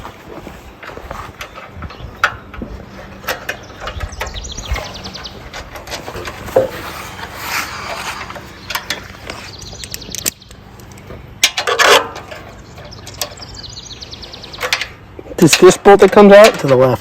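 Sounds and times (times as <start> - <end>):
hand tools clicking on bolts: 14.5 - 17.0.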